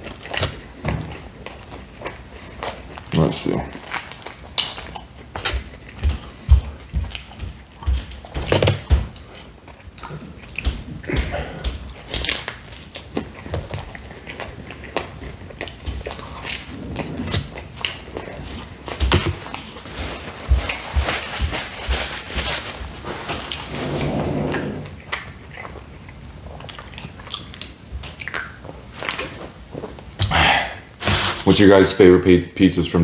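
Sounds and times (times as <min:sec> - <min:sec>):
pizza crust crunching: 0:00.0 - 0:23.8
wet chewing: 0:00.0 - 0:23.8, 0:24.8 - 0:30.3.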